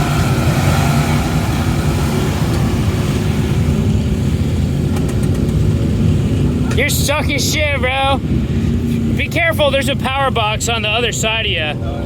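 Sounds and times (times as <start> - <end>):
truck engine at high revs: 0.0 - 10.4.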